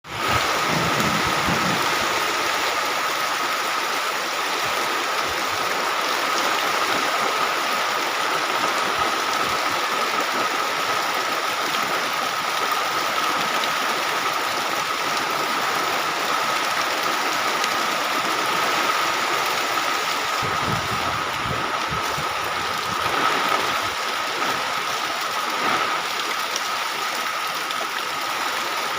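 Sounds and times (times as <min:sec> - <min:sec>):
heavy rain pouring: 0:00.0 - 0:28.9
strong wind gusts rumbling: 0:00.1 - 0:03.1, 0:18.4 - 0:25.9.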